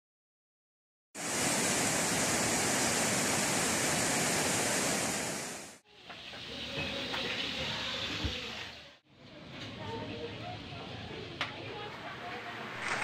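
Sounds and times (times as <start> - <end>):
heavy rain on a metal roof: 1.2 - 5.8.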